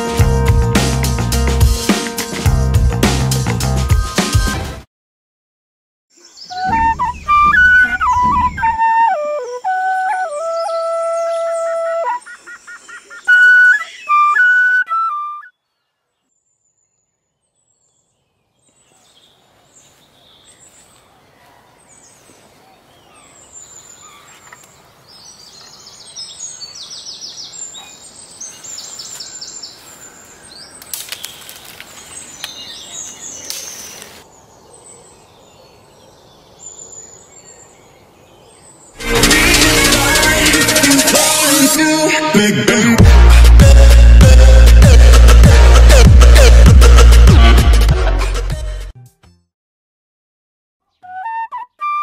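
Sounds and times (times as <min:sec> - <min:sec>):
flute-like melody: 0:06.5 - 0:15.6, 0:39.0 - 0:47.9, 0:51.0 - 0:52.0
small birds chirping: 0:15.7 - 0:39.0.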